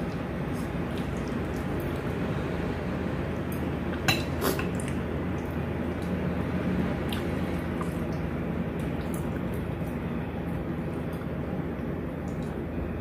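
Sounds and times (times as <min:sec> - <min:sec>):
low background hum: 0:00.0 - 0:13.0
utensils clinking on a plate: 0:04.1 - 0:04.8.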